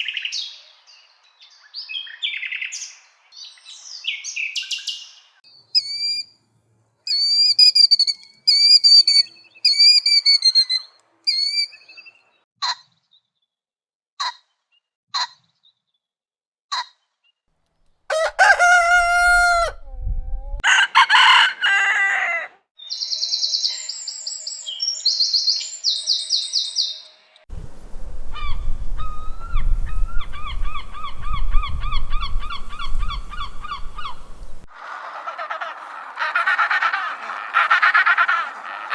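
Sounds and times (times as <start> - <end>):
bird chirps: 0.0 - 6.3, 7.1 - 12.4, 22.8 - 27.2, 28.2 - 36.2
high rapid bird warbling: 5.8 - 6.2, 7.1 - 11.9, 28.0 - 38.9
long drawn-out bird call: 7.1 - 12.2, 27.7 - 38.9.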